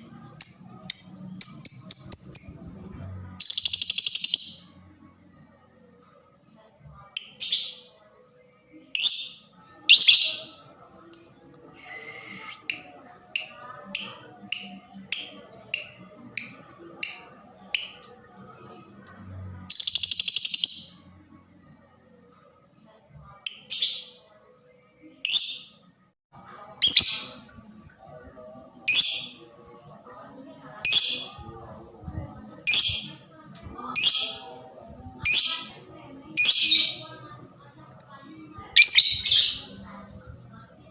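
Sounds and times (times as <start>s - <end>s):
bird chirping: 0.0s - 2.7s, 38.8s - 39.8s.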